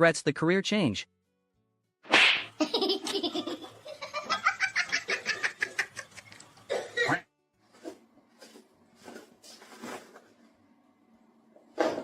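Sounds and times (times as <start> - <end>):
person laughing: 2.6 - 6.3.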